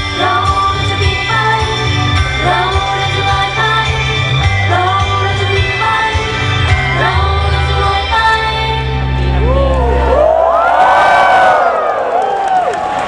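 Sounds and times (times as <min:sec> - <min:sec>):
loud band backing track: 0:00.0 - 0:08.7
female group singing: 0:00.0 - 0:09.0.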